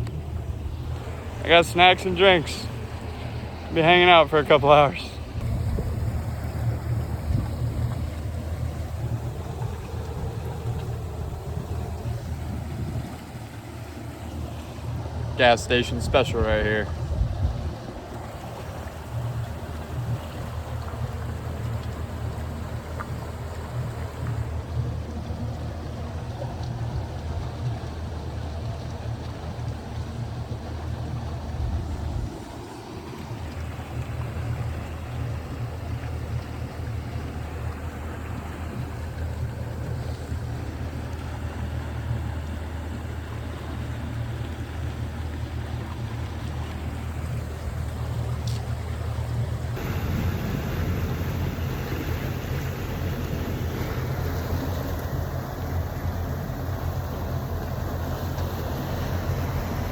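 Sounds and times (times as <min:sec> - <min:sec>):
boat engine throbbing hum: 0:00.0 - 0:59.9
water noise: 0:00.0 - 0:59.9
wind: 0:00.0 - 0:59.9
wind noise: 0:05.2 - 0:13.3, 0:16.3 - 0:18.8.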